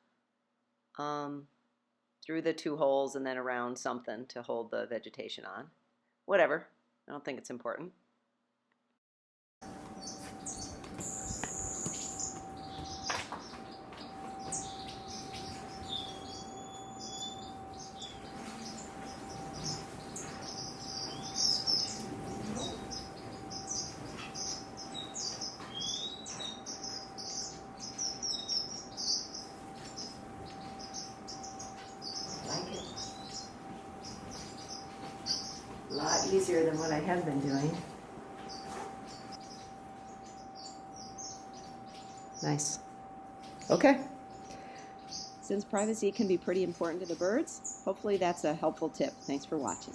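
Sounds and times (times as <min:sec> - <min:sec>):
finches chirping: 0:09.6 - 0:49.9
faint steady tone: 0:35.9 - 0:49.9.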